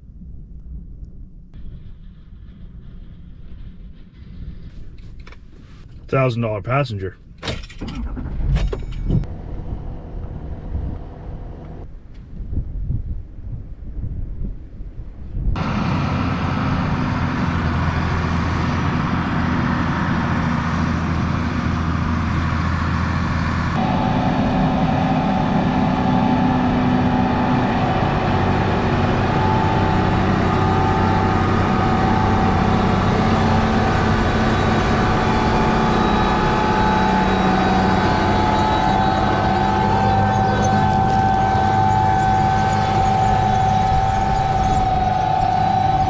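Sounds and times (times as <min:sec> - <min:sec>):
tractor engine running: 0:01.6 - 0:11.9, 0:15.6 - 0:46.0
steady high whine: 0:23.6 - 0:46.0.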